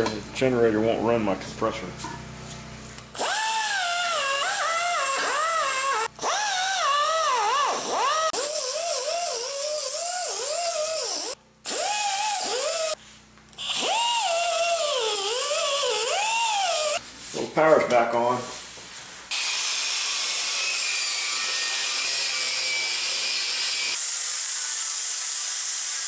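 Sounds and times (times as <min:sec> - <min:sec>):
air-powered wire brush whining: 0:03.1 - 0:13.0, 0:13.6 - 0:17.0, 0:19.3 - 0:25.0.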